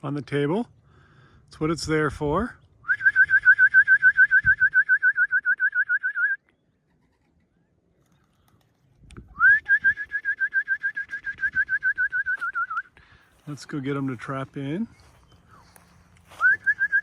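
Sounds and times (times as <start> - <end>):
trilling whistle: 2.8 - 6.5, 9.3 - 12.9, 16.3 - 17.0.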